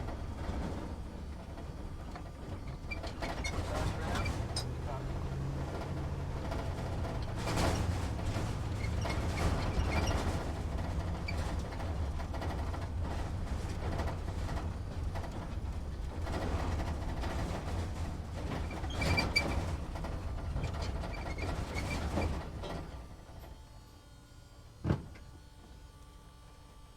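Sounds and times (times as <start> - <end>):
truck engine rumbling: 0.0 - 23.8
cab rattles and squeaks: 1.6 - 15.6, 16.8 - 23.0.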